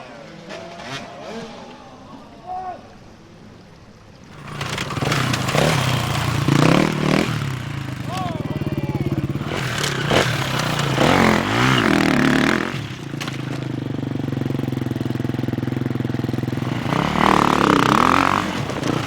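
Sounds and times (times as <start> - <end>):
dirt bike engine revving: 4.3 - 19.0.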